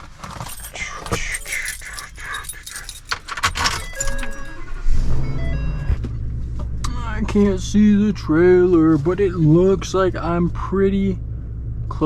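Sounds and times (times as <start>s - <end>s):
keys jangling: 0.0s - 4.8s.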